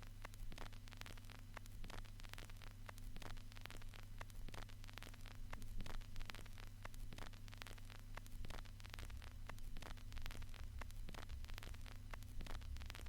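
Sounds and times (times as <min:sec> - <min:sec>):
faint hiss: 0:00.0 - 0:13.0
steady low hum: 0:00.0 - 0:13.0
vinyl crackles and pops: 0:00.0 - 0:13.0.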